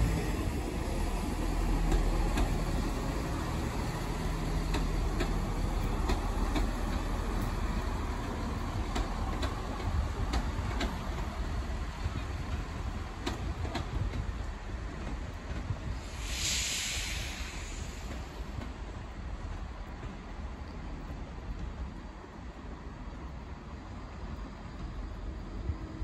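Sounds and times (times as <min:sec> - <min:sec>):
wheels clicking over rail joints: 0:00.0 - 0:15.9
train rumbling over points: 0:00.0 - 0:26.0.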